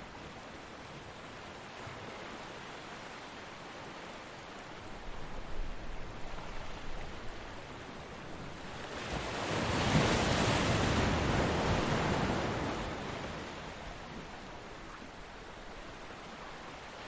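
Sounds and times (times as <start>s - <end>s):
ocean wave breaking on beach: 8.8s - 13.8s.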